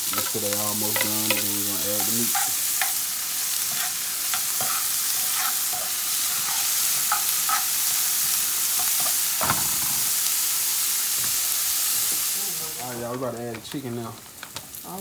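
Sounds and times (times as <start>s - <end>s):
vegetables sizzling in oil: 0.0s - 15.0s
utensil scraping pan: 0.1s - 10.3s
knock on pan: 9.4s - 10.1s.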